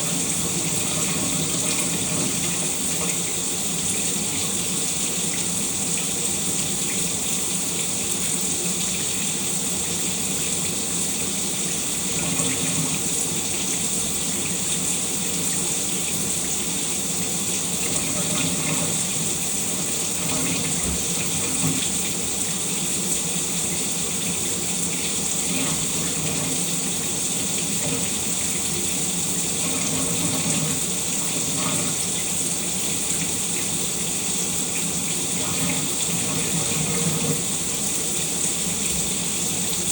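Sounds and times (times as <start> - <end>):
shower water spraying: 11.6 - 39.8.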